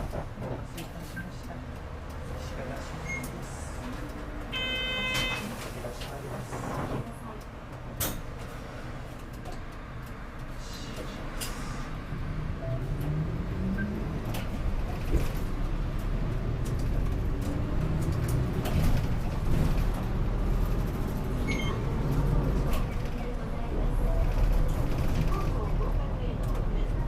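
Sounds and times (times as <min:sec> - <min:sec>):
rattles and clicks in bus cabin: 0:00.0 - 0:27.0
bus engine accelerating: 0:05.5 - 0:27.0.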